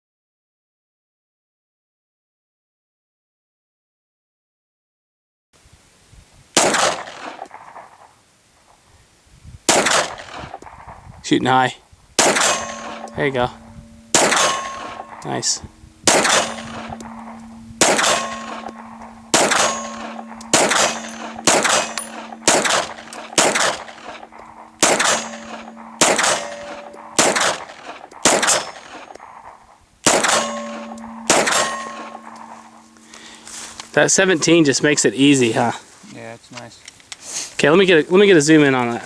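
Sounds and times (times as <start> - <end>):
steel target ringing: 6.6 - 7.5, 12.2 - 34.8
pistol shots: 6.6 - 8.1, 9.7 - 11.1, 12.2 - 33.1.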